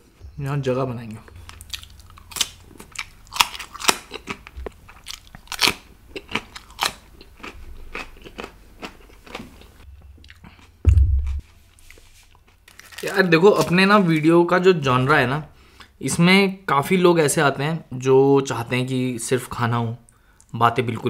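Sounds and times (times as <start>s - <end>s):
person chewing food: 1.3s - 13.0s
loud low thump: 10.8s - 11.5s.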